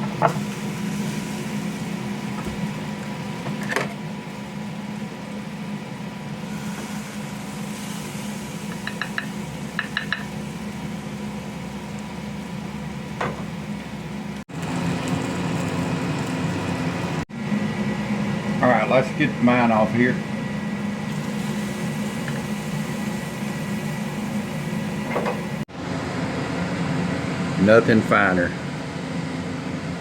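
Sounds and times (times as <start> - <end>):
mechanical hum: 0.0 - 30.0
steaks sizzling: 14.5 - 17.2, 21.1 - 25.6.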